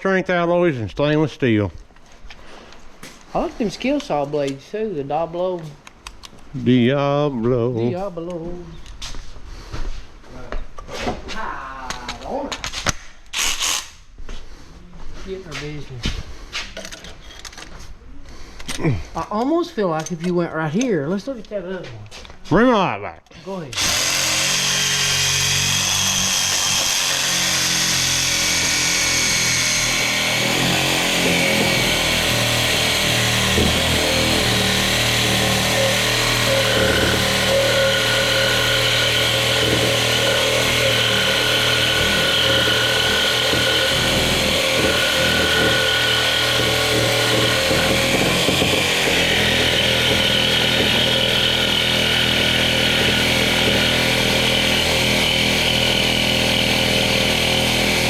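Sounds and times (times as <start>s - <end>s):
reciprocating saw cutting metal: 23.8s - 58.0s.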